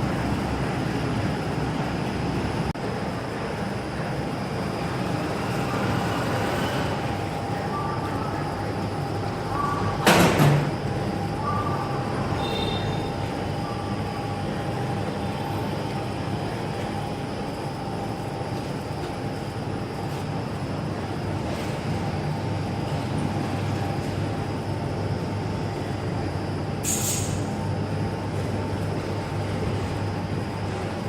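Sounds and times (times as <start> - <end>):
brief high hiss: 26.8 - 27.5.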